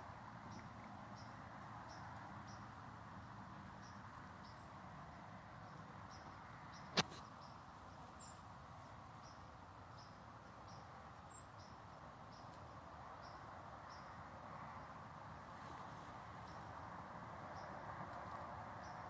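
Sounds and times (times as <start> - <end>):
sharp click: 6.9 - 7.2.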